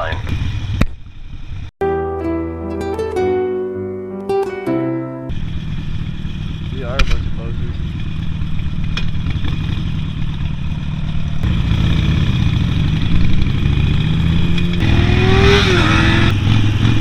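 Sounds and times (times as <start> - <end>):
motorcycle engine accelerating: 0.0 - 1.7, 5.3 - 17.0
higher engine note: 1.8 - 8.8.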